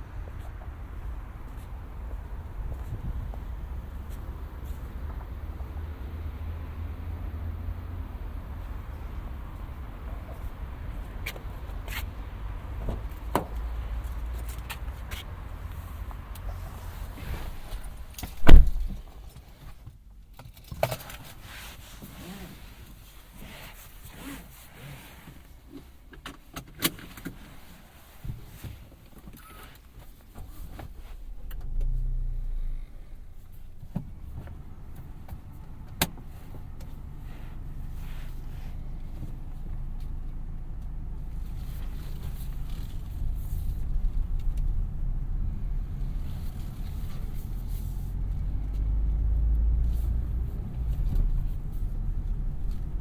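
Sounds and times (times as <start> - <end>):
car engine starting and running: 0.0 - 19.4, 20.6 - 53.0.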